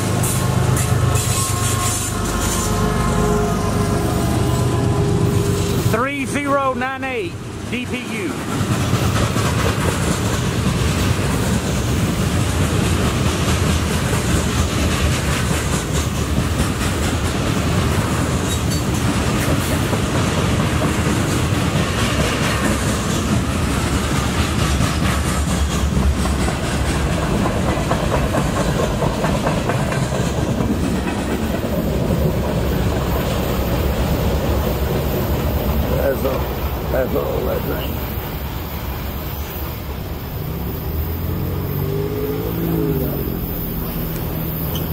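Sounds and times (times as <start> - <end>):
steel wheels rumbling on rail: 0.0 - 44.9
clickety-clack of wheel clicks: 8.5 - 11.8, 12.4 - 31.8.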